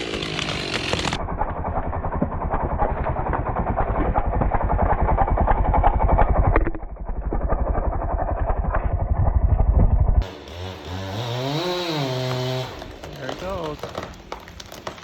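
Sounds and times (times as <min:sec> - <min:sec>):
chainsaw engine revving: 0:00.0 - 0:06.5, 0:10.2 - 0:14.1
chainsaw cutting wood: 0:00.0 - 0:06.6, 0:10.2 - 0:15.0.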